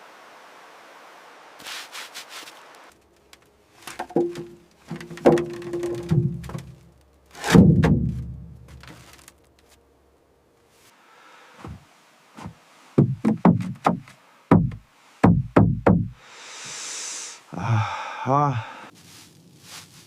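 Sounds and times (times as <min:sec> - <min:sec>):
dull knocks: 0:03.9 - 0:06.8, 0:07.4 - 0:09.1, 0:12.4 - 0:16.2.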